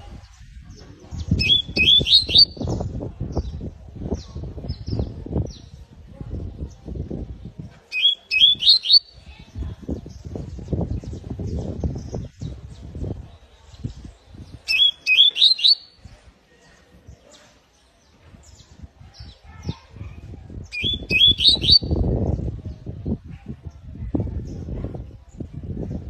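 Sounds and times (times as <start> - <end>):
canary chirping: 1.3 - 2.7, 7.9 - 9.2, 14.6 - 16.0, 20.7 - 22.0.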